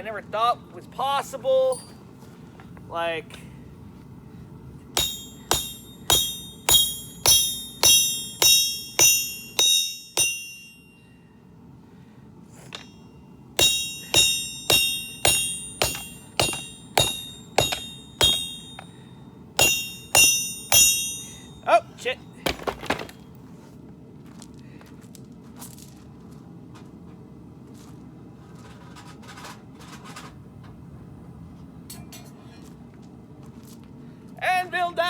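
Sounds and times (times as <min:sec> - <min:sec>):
hammer ringing on steel anvil: 0:05.0 - 0:11.1, 0:12.7 - 0:21.8, 0:22.5 - 0:23.1.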